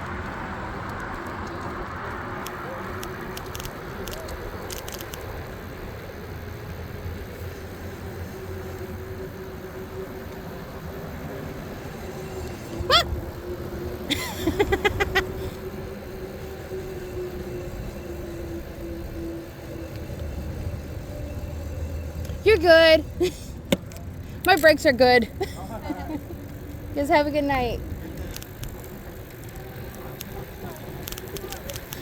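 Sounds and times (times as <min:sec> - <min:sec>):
electric motor whine: 0:02.4 - 0:32.0
short high-pitched calls: 0:12.7 - 0:13.2.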